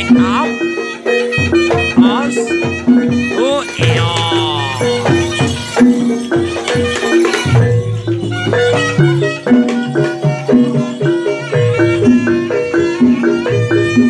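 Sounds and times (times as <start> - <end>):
drum and percussion strikes: 0.0 - 14.0
bass line: 3.4 - 5.8.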